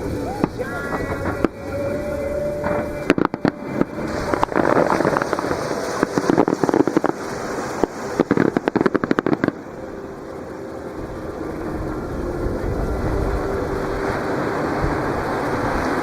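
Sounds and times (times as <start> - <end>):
fireworks bangs: 0.0 - 9.8
fireworks crackling: 0.0 - 16.0.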